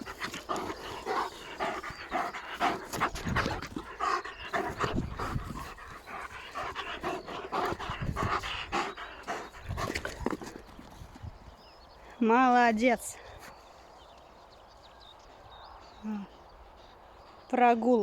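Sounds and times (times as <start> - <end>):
dog panting: 0.0 - 11.2.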